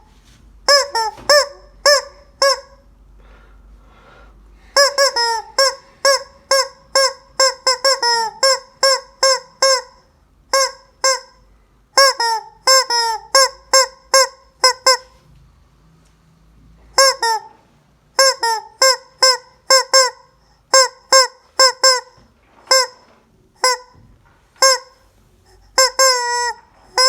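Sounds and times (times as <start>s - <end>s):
rubber chicken toy squawking: 0.7s - 2.9s, 4.8s - 11.4s, 12.0s - 15.2s, 16.9s - 24.0s, 24.6s - 27.0s.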